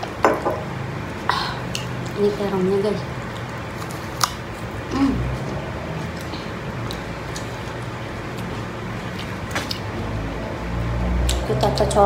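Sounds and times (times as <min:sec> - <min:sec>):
wet chewing: 0:03.2 - 0:10.0.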